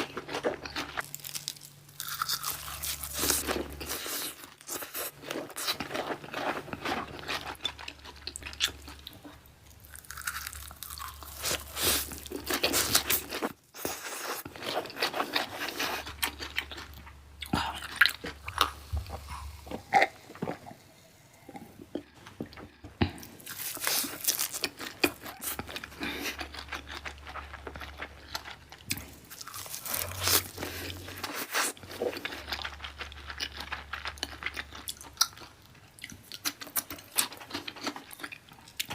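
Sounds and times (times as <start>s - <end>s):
biting and wet chewing: 0.0s - 20.8s, 21.9s - 38.9s.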